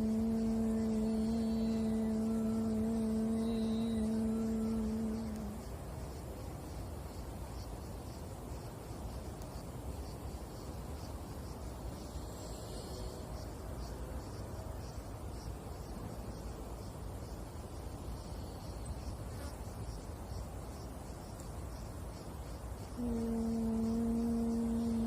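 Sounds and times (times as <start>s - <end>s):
insect chirping: 0.0s - 25.0s.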